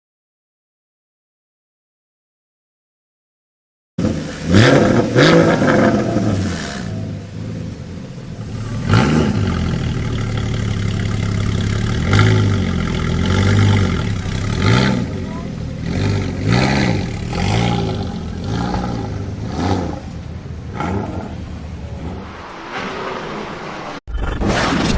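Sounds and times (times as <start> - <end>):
car engine idling and revving: 4.0 - 23.8.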